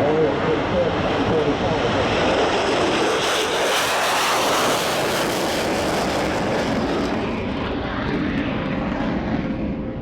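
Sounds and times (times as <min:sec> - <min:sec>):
jet flying past: 0:00.0 - 0:10.0.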